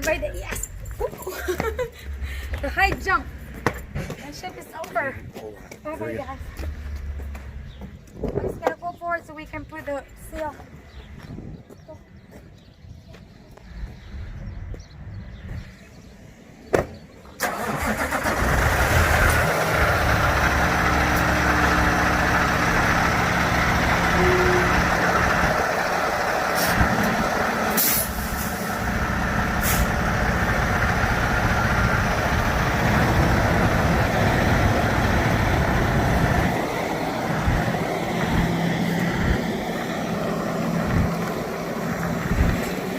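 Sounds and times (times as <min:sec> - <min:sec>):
diesel truck engine running: 0:17.4 - 0:42.9.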